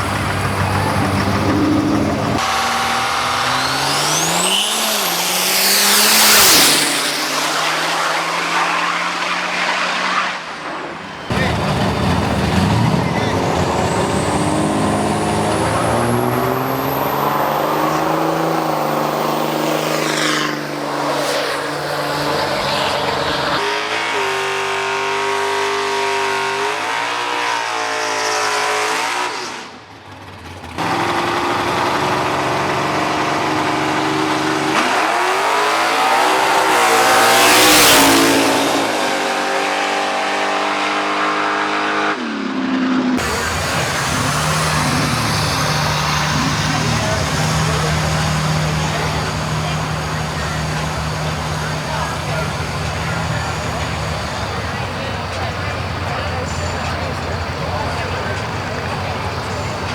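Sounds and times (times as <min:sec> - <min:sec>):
loud vehicle pass: 0:00.0 - 0:27.6, 0:28.2 - 0:59.9
drag racing trucks revving: 0:00.0 - 0:59.9.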